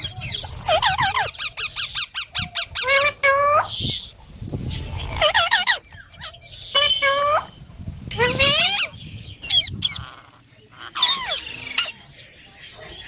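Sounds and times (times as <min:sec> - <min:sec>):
parrot squawking and whistling: 0:00.3 - 0:03.7, 0:08.2 - 0:12.0.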